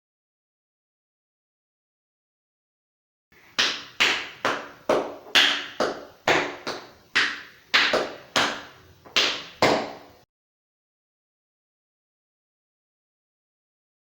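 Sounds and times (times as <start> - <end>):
tap shoes on hard floor: 3.5 - 10.2.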